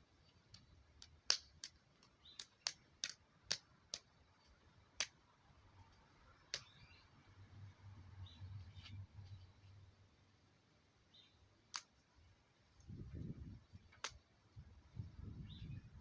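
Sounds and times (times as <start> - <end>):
sharp irregular clicks: 0.5 - 5.9, 6.5 - 6.9, 13.9 - 14.2.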